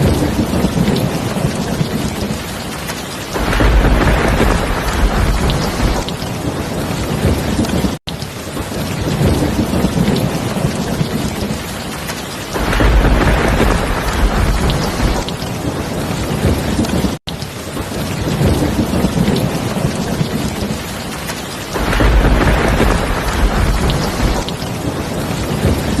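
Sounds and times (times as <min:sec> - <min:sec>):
heavy rain: 0:00.0 - 0:26.0
thunder rumbling: 0:00.0 - 0:26.0.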